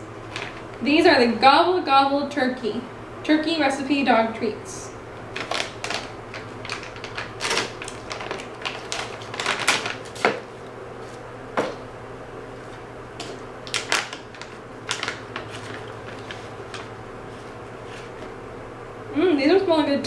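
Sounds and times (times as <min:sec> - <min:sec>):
plastic bag crinkling: 0:00.2 - 0:00.7, 0:05.3 - 0:10.7, 0:13.6 - 0:18.2.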